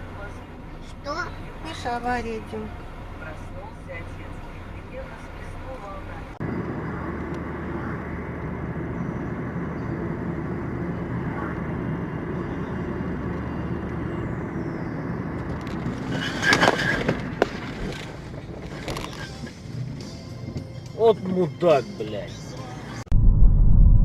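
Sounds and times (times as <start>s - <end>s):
vehicle engine and road noise: 0.0s - 24.0s
sudden loud burst of noise: 23.1s - 24.0s.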